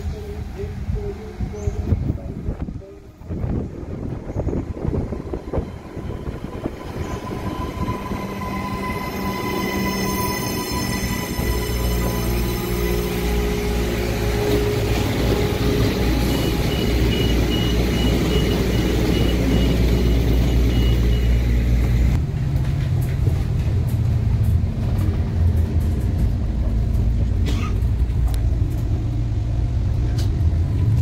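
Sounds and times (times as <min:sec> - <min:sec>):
moving vehicle rumble: 0:00.0 - 0:31.0
music: 0:06.4 - 0:19.2.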